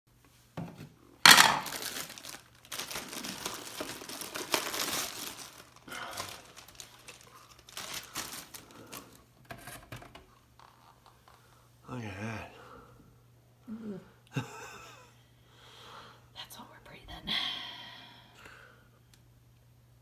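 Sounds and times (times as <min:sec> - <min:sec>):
plastic crinkling and rustling: 0:01.3 - 0:11.4.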